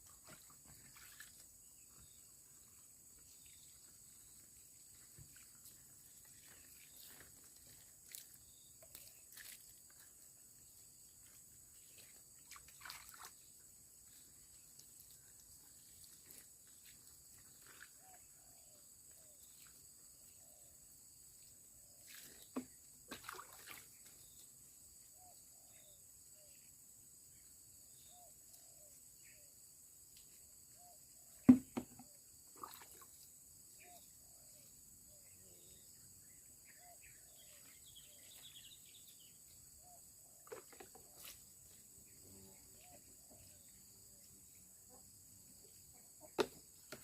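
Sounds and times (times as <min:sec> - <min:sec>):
water splashes: 0:12.4 - 0:13.5, 0:22.1 - 0:24.2, 0:32.5 - 0:33.2.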